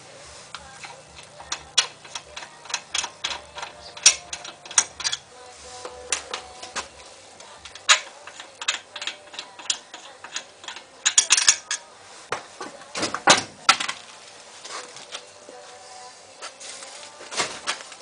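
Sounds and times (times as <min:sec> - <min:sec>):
metal tools clinking: 0:00.8 - 0:11.9.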